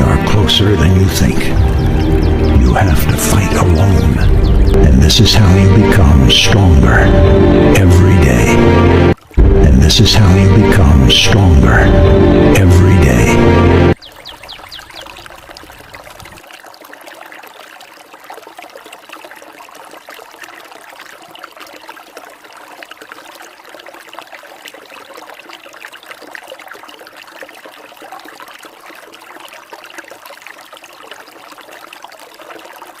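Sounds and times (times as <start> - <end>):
waterfall pouring and splashing: 14.0 - 33.0.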